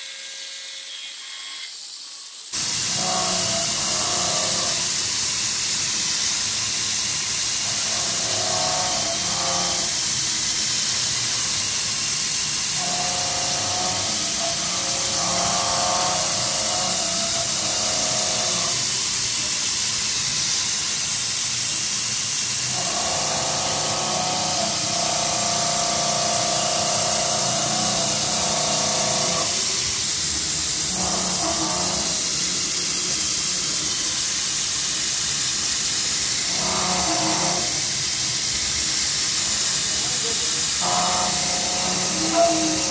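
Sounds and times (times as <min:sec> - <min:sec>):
milling machine hiss: 0:00.1 - 0:42.9
cutting whine: 0:26.8 - 0:34.4.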